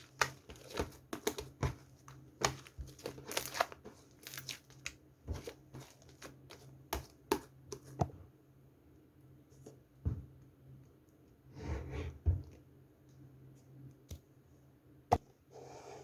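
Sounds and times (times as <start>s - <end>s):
slime squishing: 0.0s - 7.4s.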